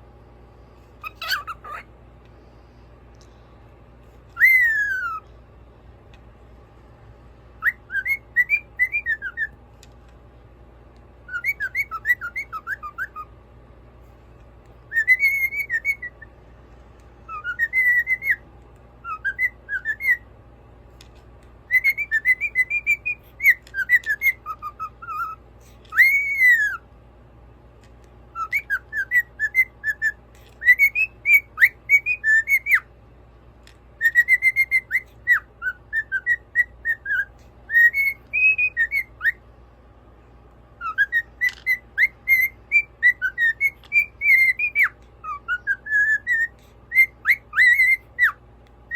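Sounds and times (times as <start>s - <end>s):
faint steady hum: 0.0s - 48.9s
cockatiel whistling: 1.0s - 1.9s, 4.3s - 5.2s, 7.6s - 9.6s, 11.3s - 13.3s, 14.9s - 16.3s, 17.3s - 18.4s, 19.0s - 20.2s, 21.7s - 26.8s, 28.3s - 32.9s, 34.0s - 39.4s, 40.8s - 48.9s.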